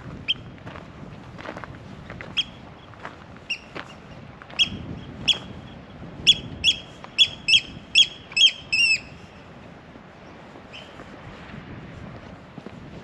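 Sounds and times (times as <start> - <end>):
bird giving sharp high calls: 3.5 - 4.0, 4.6 - 5.5, 6.3 - 9.3.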